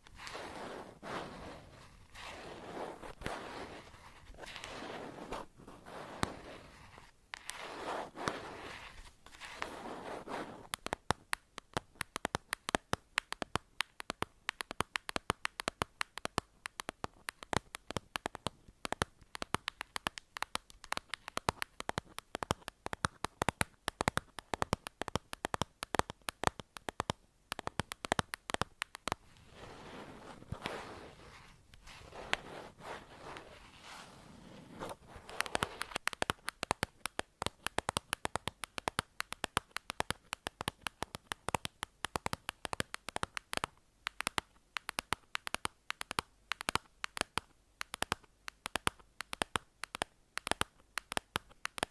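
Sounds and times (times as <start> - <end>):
soft brushing swishes: 0.0 - 10.7, 29.2 - 36.0
quick sharp clicks and taps: 7.3 - 33.5, 34.8 - 51.9.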